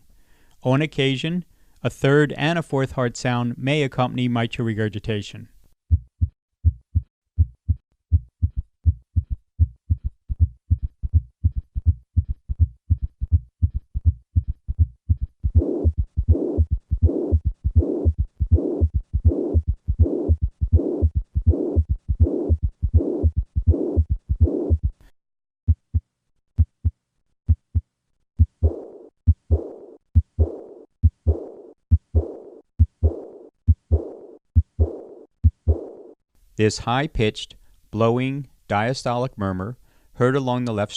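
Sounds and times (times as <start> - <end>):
blowing heart murmur: 5.9 - 25.0, 28.4 - 36.0
heart beating with gallop: 5.9 - 25.0, 25.7 - 36.2.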